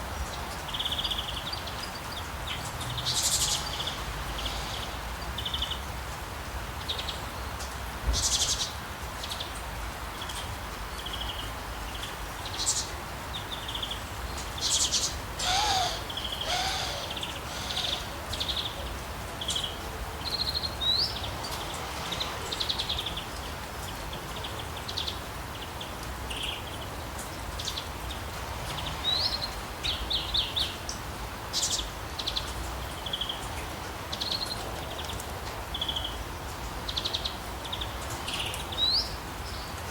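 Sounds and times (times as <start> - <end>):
rain hissing in a forest: 0.0 - 39.9
birds chirping and calling: 12.5 - 19.7.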